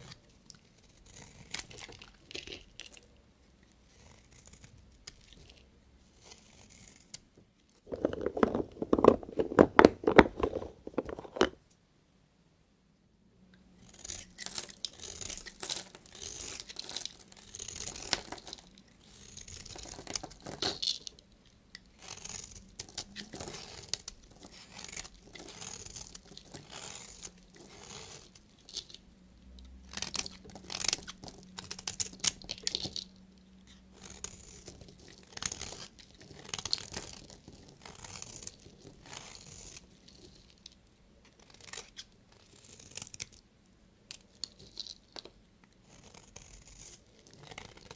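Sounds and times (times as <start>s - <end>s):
knife cutting soap cracking: 0.0s - 3.0s, 13.8s - 29.0s, 29.7s - 33.1s, 33.7s - 43.4s
knife scraping soap: 0.0s - 11.6s, 13.8s - 43.4s, 44.1s - 47.9s.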